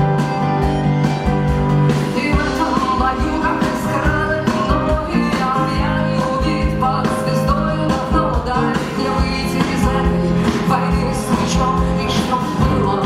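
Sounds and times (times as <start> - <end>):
live rock band playing: 0.0 - 13.0
steady drum beats: 0.0 - 13.0
person singing: 2.0 - 13.0.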